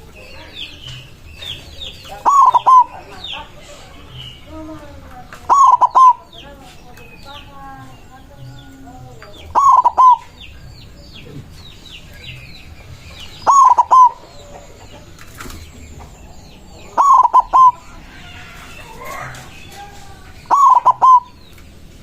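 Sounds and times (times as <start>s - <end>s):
dove cooing: 1.4s - 6.6s, 8.5s - 10.4s, 13.3s - 19.5s, 20.4s - 21.4s.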